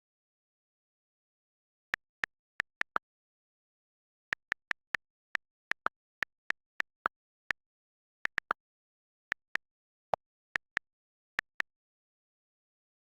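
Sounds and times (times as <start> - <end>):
sharp clicks: 2.0 - 3.0, 4.3 - 8.6, 10.5 - 11.8.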